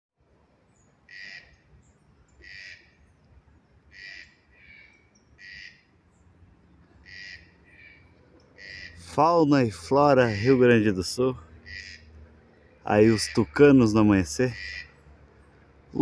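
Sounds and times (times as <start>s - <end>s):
toucans croaking: 1.0s - 1.7s, 2.3s - 3.0s, 3.9s - 6.0s, 6.9s - 15.1s.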